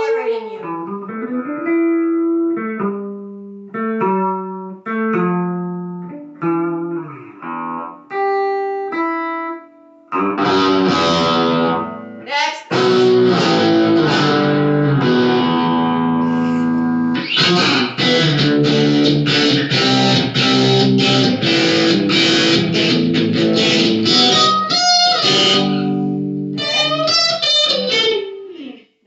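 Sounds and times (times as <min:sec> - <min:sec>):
electric guitar chords: 0:00.0 - 0:28.6.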